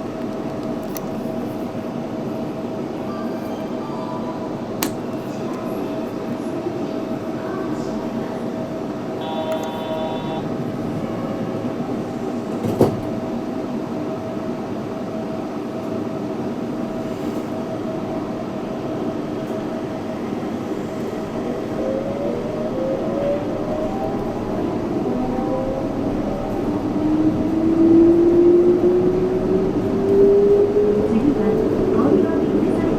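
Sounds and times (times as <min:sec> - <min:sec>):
train rumbling at speed: 0:00.0 - 0:32.9
brief ringing tone: 0:09.2 - 0:10.5.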